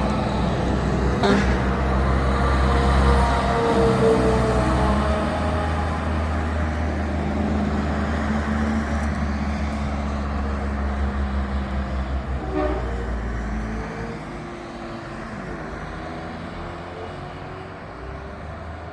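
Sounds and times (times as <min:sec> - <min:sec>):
diesel engine rumbling: 0:00.0 - 0:18.9
horn toot: 0:12.4 - 0:13.1.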